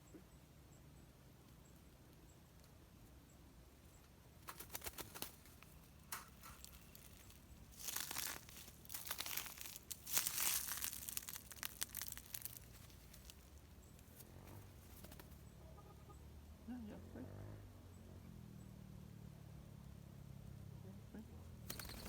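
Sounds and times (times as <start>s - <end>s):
crinkling handling noise: 4.4s - 15.4s.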